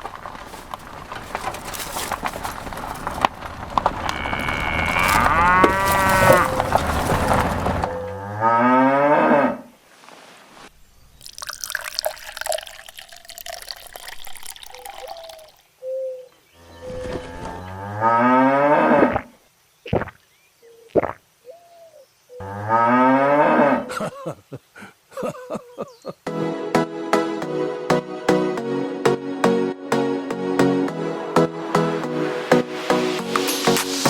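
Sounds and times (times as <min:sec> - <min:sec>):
cow mooing: 0:04.1 - 0:06.7
splashing water: 0:11.1 - 0:15.6.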